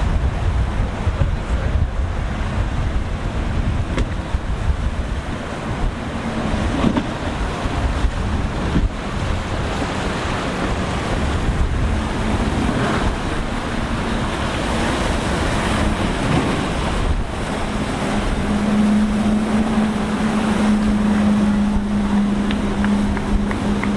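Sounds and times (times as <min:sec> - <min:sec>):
boat engine drone: 0:00.0 - 0:23.9
surf and waves: 0:00.0 - 0:23.9
wind buffeting microphone: 0:00.0 - 0:23.9.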